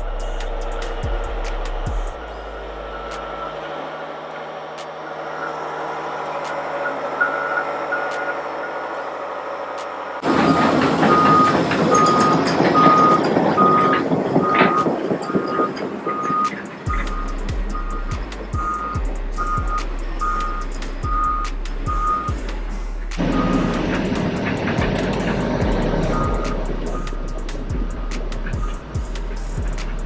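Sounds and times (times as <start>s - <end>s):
heavy engine running: 0.0s - 30.0s
backup alarm beeping: 10.2s - 22.4s, 23.2s - 29.0s.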